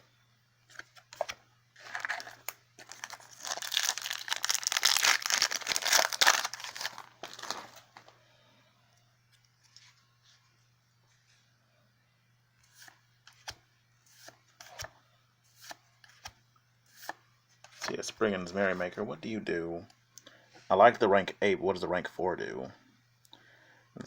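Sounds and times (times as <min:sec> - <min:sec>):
foil wrapper tearing and crinkling: 0:01.8 - 0:07.9.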